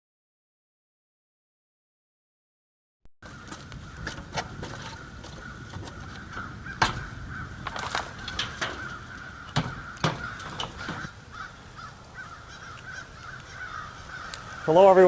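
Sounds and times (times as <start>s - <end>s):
crows cawing: 3.2s - 15.0s
sharp knocks: 4.0s - 11.1s.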